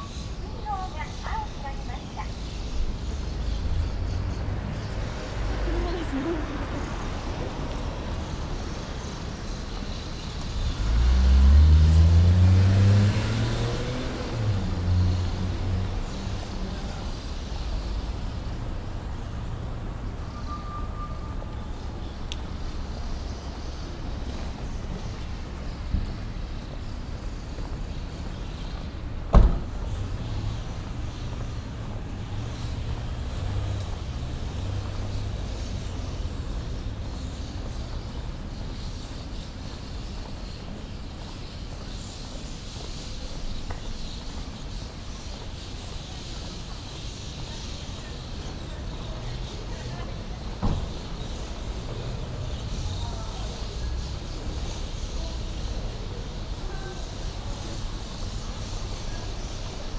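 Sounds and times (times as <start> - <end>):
street noise: 0.0 - 59.9
vehicle engine accelerating: 9.9 - 20.8, 29.7 - 39.4.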